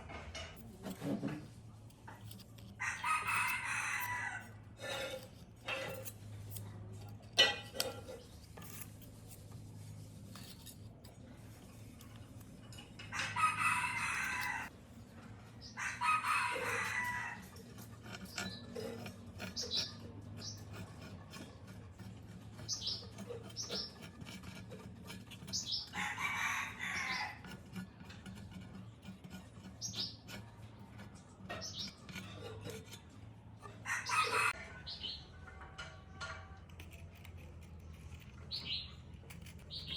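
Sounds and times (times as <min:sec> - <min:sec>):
rooster crowing: 0:02.8 - 0:04.5, 0:13.1 - 0:14.7, 0:15.8 - 0:17.5, 0:25.9 - 0:27.4, 0:33.8 - 0:34.9.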